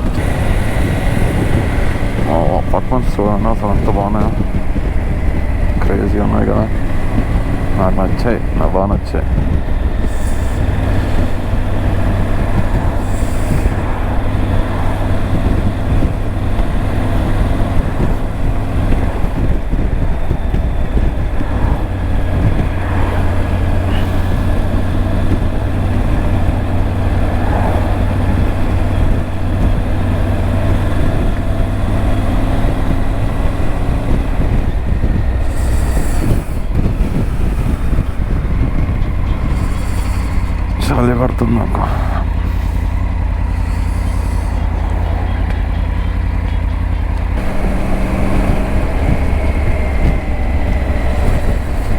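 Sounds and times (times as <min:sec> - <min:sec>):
motorcycle engine cruising: 0:00.0 - 0:51.9
wind rumble on microphone: 0:00.0 - 0:51.9.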